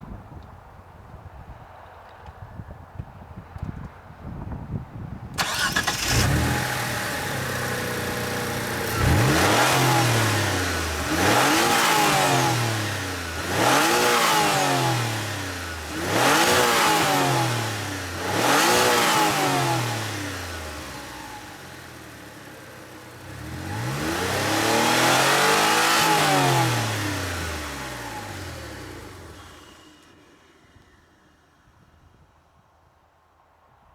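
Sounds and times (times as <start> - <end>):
car engine starting and revving: 5.4 - 31.7.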